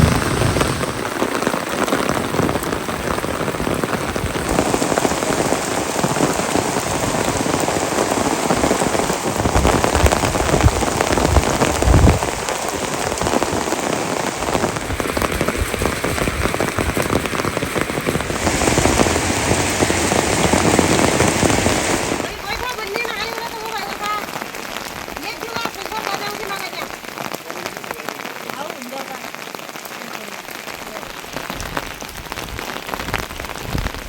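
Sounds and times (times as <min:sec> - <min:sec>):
low thuds: 0:00.0 - 0:01.2
heavy rain hissing: 0:00.0 - 0:34.0.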